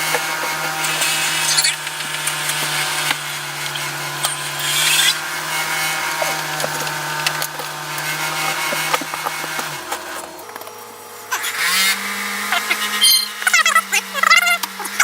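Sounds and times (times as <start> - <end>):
power tool cutting wood: 0.0 - 15.0
wood cracking and snapping: 0.1 - 11.0.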